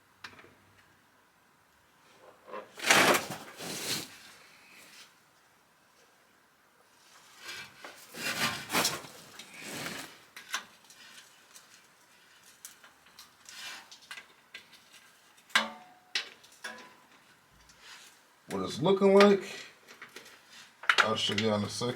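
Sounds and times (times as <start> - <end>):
scraping on metal: 7.4 - 10.2.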